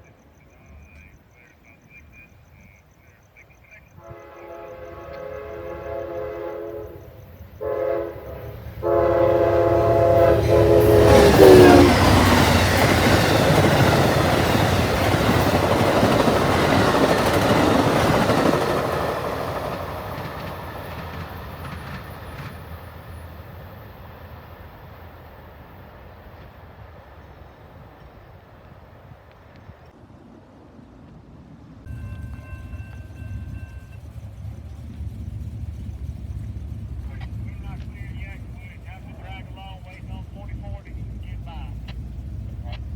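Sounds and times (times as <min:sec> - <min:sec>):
train rumbling with clattering wheels: 0:03.9 - 0:29.8, 0:31.8 - 0:42.9
train horn blasts: 0:04.0 - 0:12.7.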